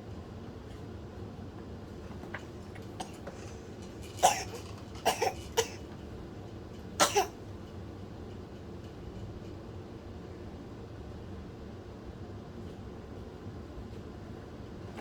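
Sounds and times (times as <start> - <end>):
baby coughing: 2.9 - 3.5, 4.2 - 5.9, 7.0 - 7.4.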